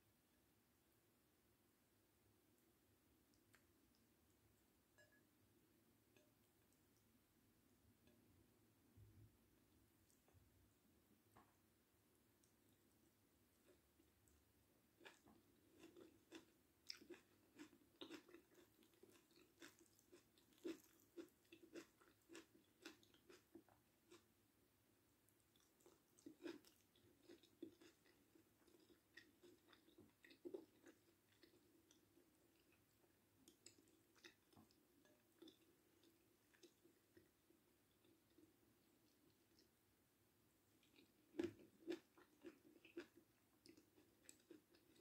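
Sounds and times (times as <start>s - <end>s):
person chewing food: 12.4s - 24.3s, 25.3s - 39.8s, 40.7s - 45.0s.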